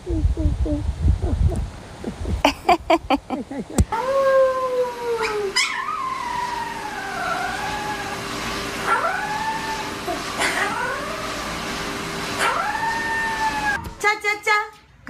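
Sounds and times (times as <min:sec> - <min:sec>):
dog howling: 0:03.9 - 0:11.4, 0:12.4 - 0:13.8.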